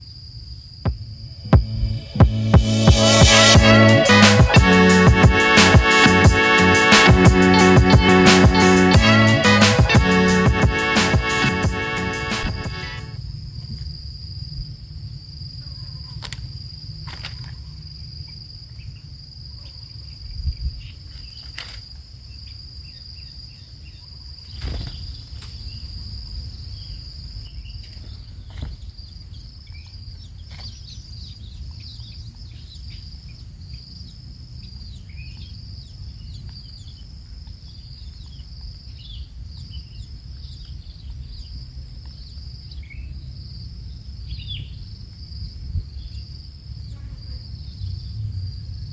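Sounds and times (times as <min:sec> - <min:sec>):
low rumble: 0:00.9 - 0:03.7.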